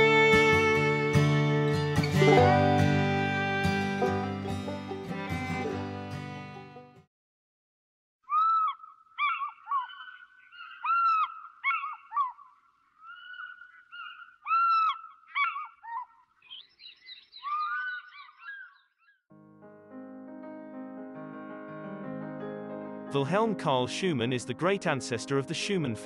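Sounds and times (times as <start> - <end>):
birds calling: 8.3 - 19.2.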